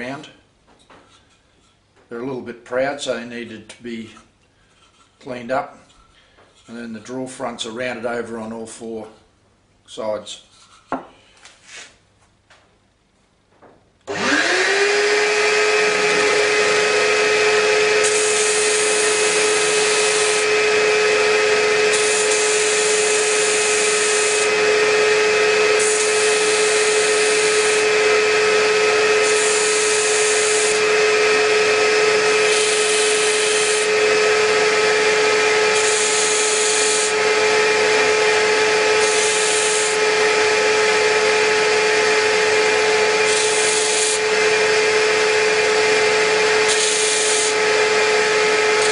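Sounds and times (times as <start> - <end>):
electric disc sander whine: 14.1 - 48.9.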